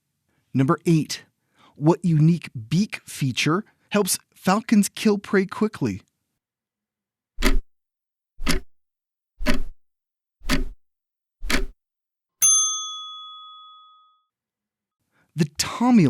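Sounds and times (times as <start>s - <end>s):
clock ticks: 7.4s - 7.6s, 8.4s - 8.7s, 9.4s - 9.8s, 10.4s - 10.8s, 11.4s - 11.7s
bell ding: 12.4s - 14.3s.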